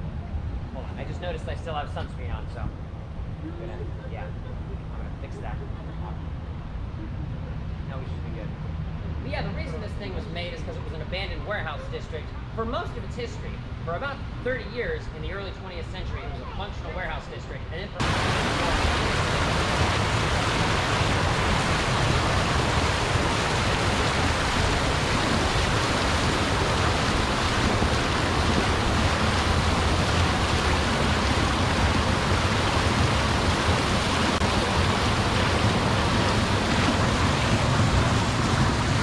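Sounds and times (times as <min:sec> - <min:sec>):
loud rushing noise: 0:18.0 - 0:39.0.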